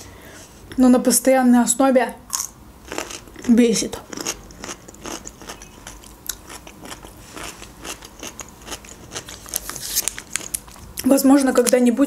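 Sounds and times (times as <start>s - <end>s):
person chewing food: 2.3s - 11.0s.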